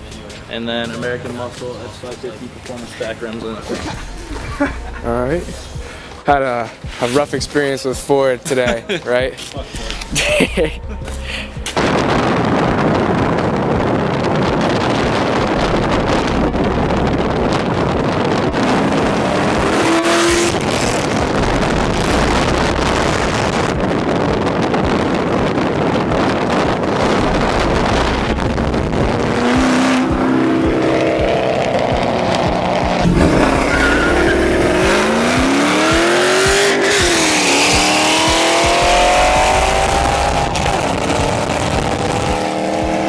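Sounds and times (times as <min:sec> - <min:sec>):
loud car engine revving: 0:03.8 - 0:06.2, 0:14.9 - 0:23.7, 0:26.6 - 0:43.0.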